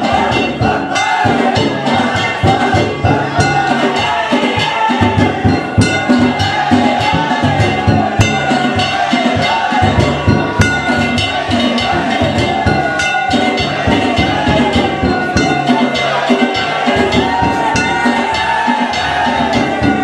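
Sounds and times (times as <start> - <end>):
clanging hand gongs: 0.0 - 20.0
taiko drum: 0.0 - 20.0.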